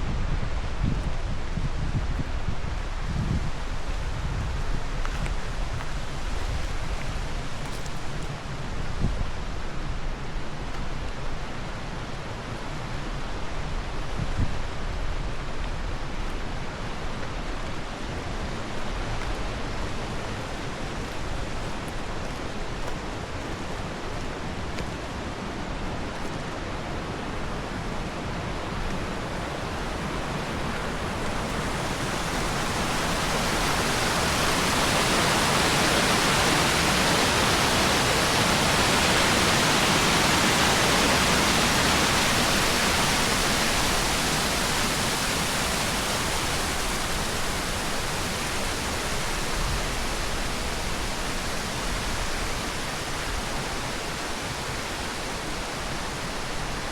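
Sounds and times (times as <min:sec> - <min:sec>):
rushing water: 0:00.0 - 0:56.9.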